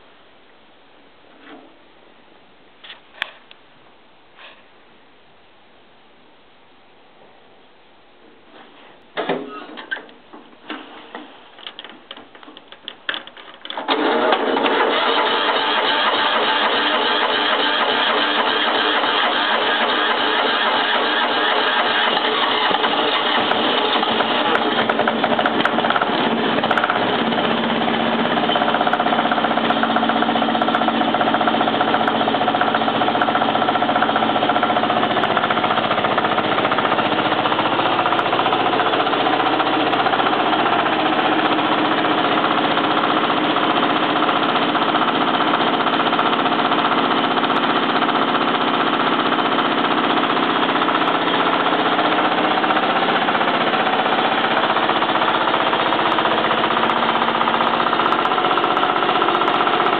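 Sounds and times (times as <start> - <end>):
diesel engine idling: 14.9 - 47.3, 48.5 - 59.9.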